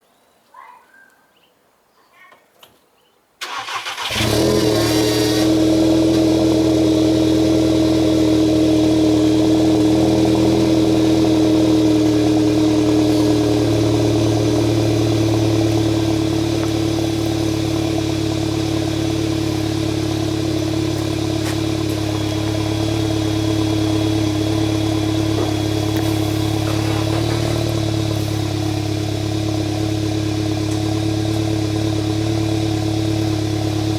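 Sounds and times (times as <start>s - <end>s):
car starter cranking: 3.4s - 6.2s
car engine idling loudly: 3.6s - 33.9s.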